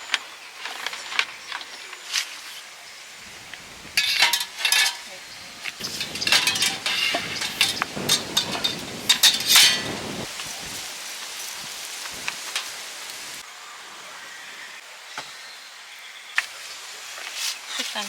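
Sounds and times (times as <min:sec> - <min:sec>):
rain hiss: 0:00.0 - 0:18.0
dishes clinking: 0:04.0 - 0:10.1.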